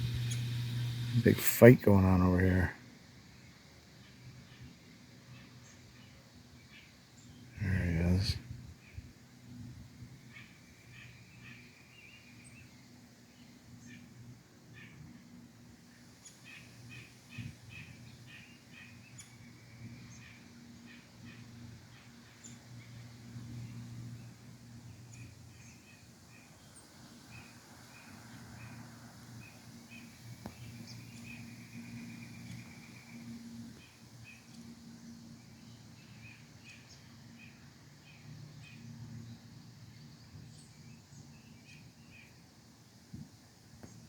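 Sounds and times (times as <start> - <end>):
small birds chirping: 0.0 - 2.7, 5.6 - 9.0, 29.4 - 42.4
faint steady low hum: 0.0 - 2.8.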